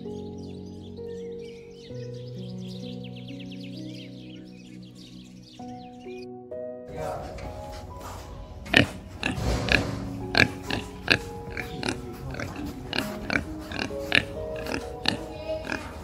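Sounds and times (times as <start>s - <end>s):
soft background music: 0.0s - 16.0s
young pigs calling: 7.2s - 16.0s.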